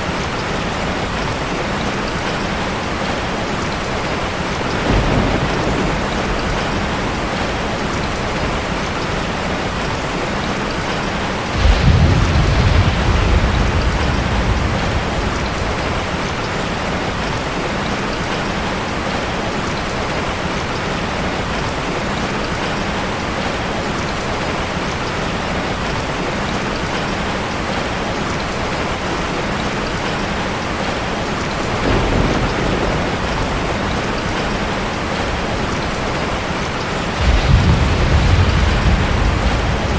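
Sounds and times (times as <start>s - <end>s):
thunder rumbling: 0.0s - 18.4s, 31.6s - 39.9s
heavy rain falling: 0.0s - 39.9s.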